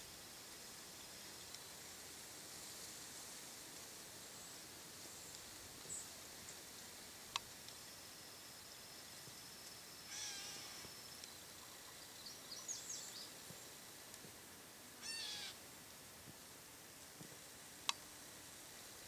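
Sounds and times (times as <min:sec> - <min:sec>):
wild bird calls: 0:10.0 - 0:11.0, 0:15.0 - 0:15.6.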